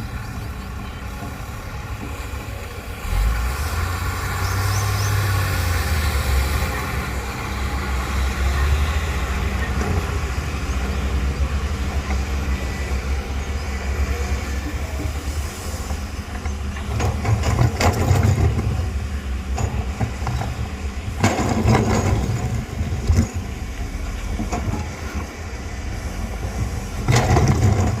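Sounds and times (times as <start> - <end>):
excavator diesel engine droning: 0.0 - 28.0
digging clattering and scraping: 15.9 - 28.0.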